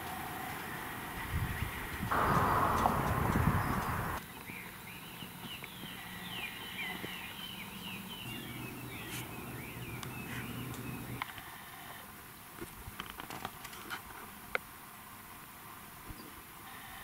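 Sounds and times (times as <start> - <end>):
birds chirping and trilling: 1.2 - 11.2
faint low hum: 2.1 - 4.2.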